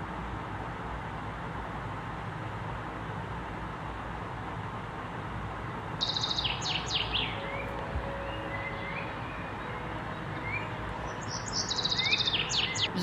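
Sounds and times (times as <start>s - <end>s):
soft bird chirps: 6.0s - 13.0s
bird chattering trill: 11.2s - 13.0s.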